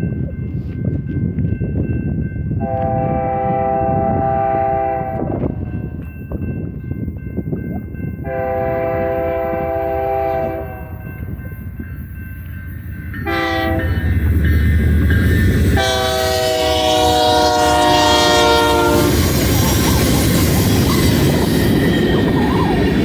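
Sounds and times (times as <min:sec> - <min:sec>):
rolling train cars: 0:00.0 - 0:23.0
train air horn blasts: 0:02.6 - 0:05.6, 0:08.2 - 0:11.0, 0:13.2 - 0:14.2, 0:15.8 - 0:19.3.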